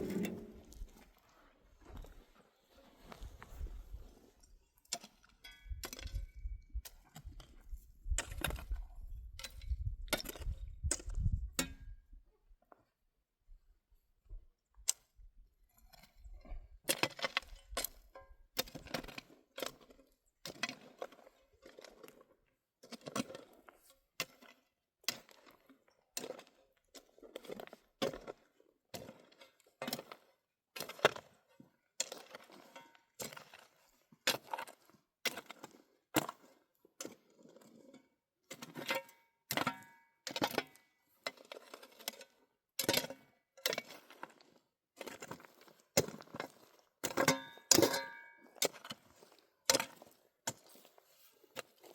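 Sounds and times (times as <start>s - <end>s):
metal tool striking stony ground: 0.0s - 0.7s, 38.6s - 42.2s, 47.0s - 49.1s
tool scraping ground: 0.0s - 0.9s.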